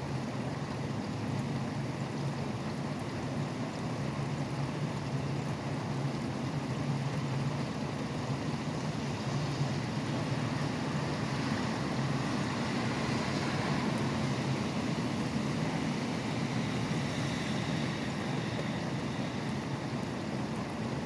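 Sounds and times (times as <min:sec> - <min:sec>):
highway traffic rumble: 0:00.0 - 0:21.0
steady rain: 0:00.0 - 0:21.0
wet tyres hissing: 0:08.3 - 0:21.0.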